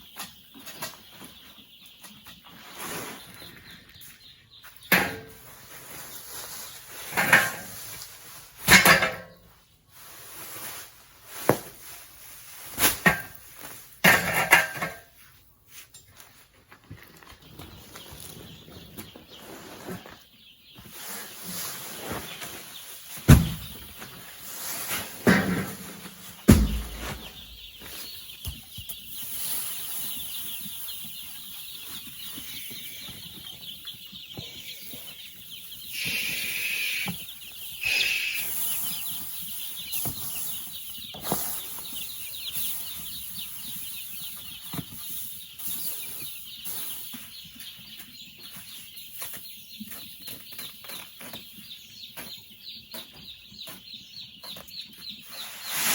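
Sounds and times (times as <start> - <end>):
chickens clucking: 0.0 - 55.9
loud knocks: 26.5 - 27.2.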